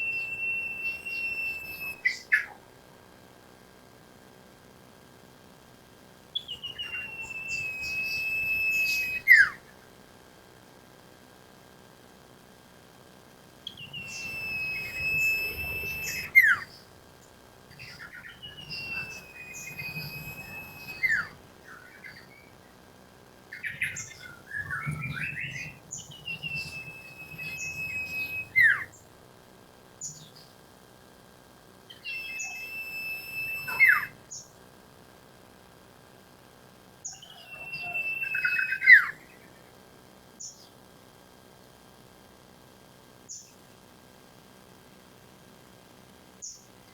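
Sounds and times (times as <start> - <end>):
bird whistling song: 0.0 - 2.6, 6.4 - 9.7, 13.6 - 16.9, 17.7 - 22.7, 23.5 - 29.0, 31.9 - 34.5, 37.0 - 39.5.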